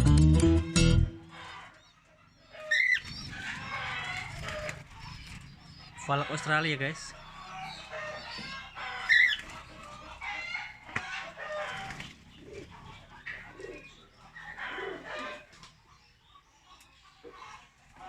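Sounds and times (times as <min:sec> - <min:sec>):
birds calling and chirping: 0:00.6 - 0:18.0
chicken-like clucking: 0:00.6 - 0:18.0.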